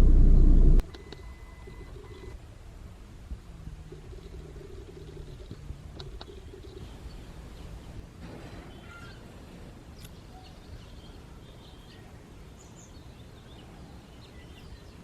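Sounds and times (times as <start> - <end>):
low outdoor rumble: 0.0 - 0.9
small birds chirping: 3.9 - 8.0, 9.9 - 15.0.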